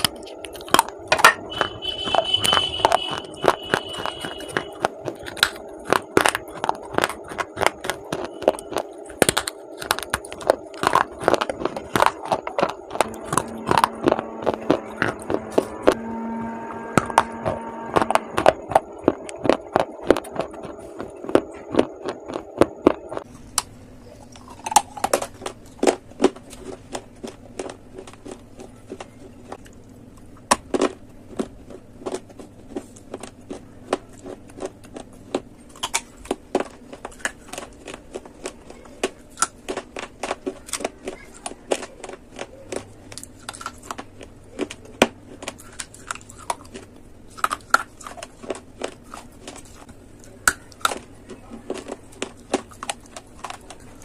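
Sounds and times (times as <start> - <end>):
crunching of clay being chewed: 0.0 - 16.0, 17.0 - 54.0
steady humming tone: 0.0 - 39.2.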